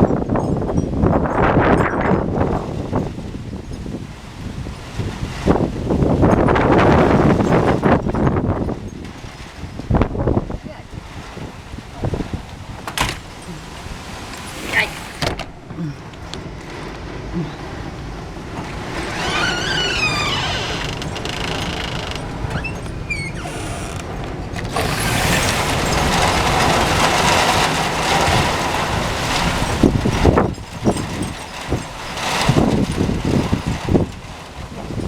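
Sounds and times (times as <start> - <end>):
wind and rain on microphone: 0.0 - 35.0
wavering squeal: 18.9 - 24.2.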